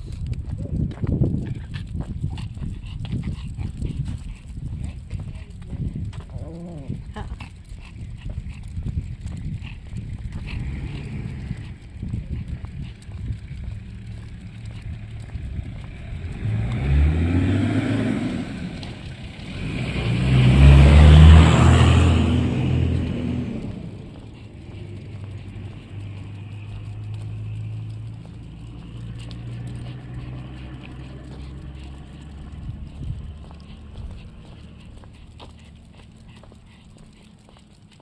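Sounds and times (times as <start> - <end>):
low engine hum: 0.0 - 38.0
cars driving past: 10.2 - 37.5.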